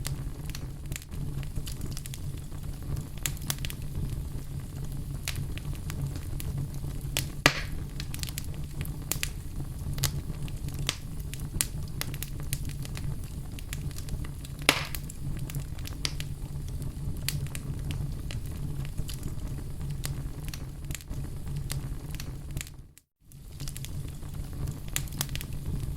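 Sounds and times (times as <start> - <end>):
loud fire pops: 0.0 - 25.9
wood fire crackling: 0.0 - 25.9.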